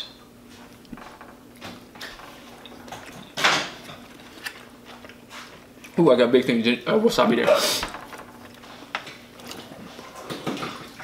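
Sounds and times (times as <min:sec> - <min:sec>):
people chewing: 0:01.5 - 0:06.1, 0:08.4 - 0:11.0.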